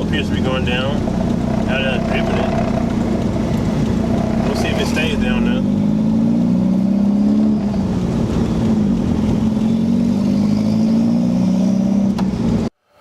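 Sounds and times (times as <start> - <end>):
car engine running at low revs: 0.0 - 12.7.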